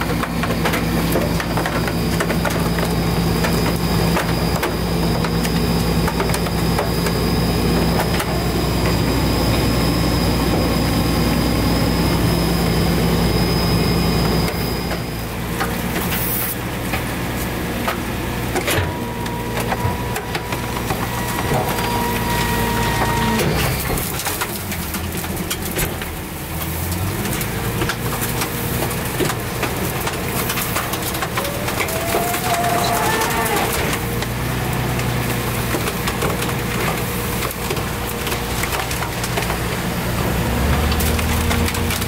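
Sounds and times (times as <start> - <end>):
garbage truck running with whine: 0.0 - 42.0.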